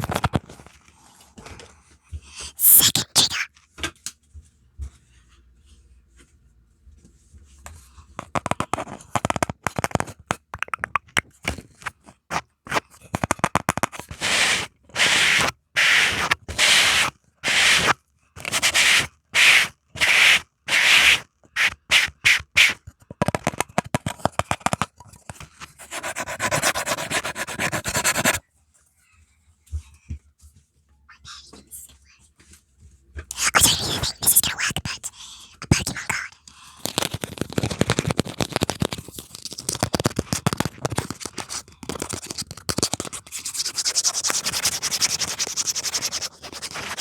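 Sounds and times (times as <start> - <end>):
scratching and rubbing on a surface: 2.6 - 3.5, 12.3 - 28.4, 33.3 - 47.0.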